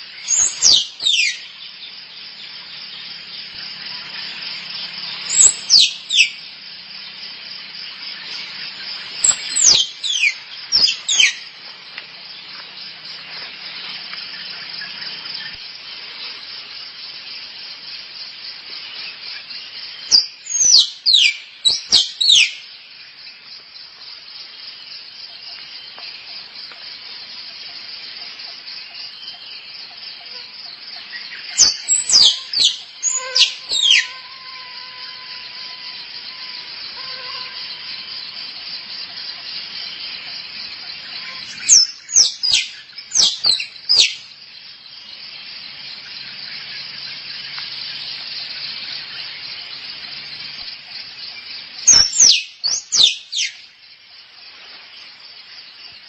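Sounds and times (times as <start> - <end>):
steady high-pitched hiss: 0.0 - 56.0
squirrel chirping: 5.3 - 6.4, 31.6 - 34.2.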